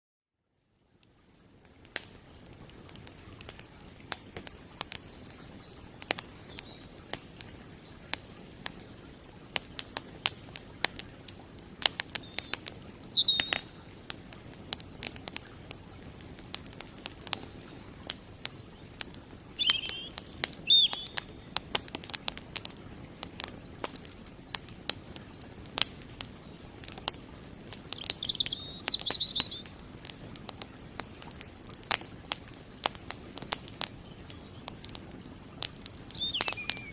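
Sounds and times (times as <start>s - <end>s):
flowing creek: 0.7s - 36.9s
wood fire crackling and popping: 1.0s - 36.9s
bird chirping: 4.3s - 9.0s, 12.2s - 13.8s, 19.1s - 21.2s, 27.9s - 29.7s, 36.1s - 36.9s.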